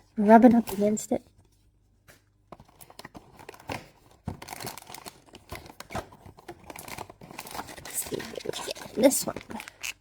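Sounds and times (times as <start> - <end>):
packaging crinkling and tearing: 2.6 - 10.0.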